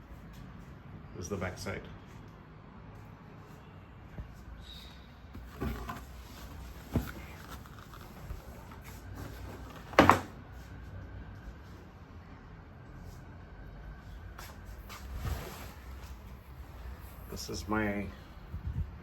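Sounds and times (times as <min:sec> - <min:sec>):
handling knocks and clunks: 0:05.3 - 0:07.7.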